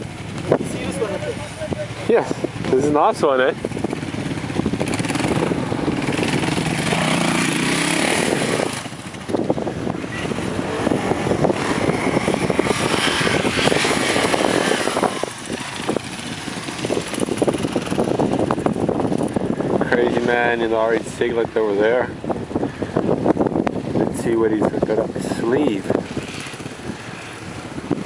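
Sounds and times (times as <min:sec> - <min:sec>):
motorcycle engine revving hard: 0:02.1 - 0:20.7.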